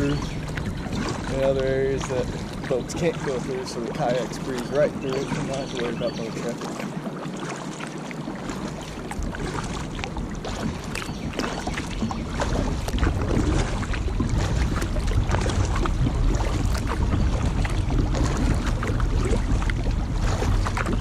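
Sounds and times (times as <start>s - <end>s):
paddle splashing water: 0.0s - 21.0s
low rumble: 9.0s - 21.0s.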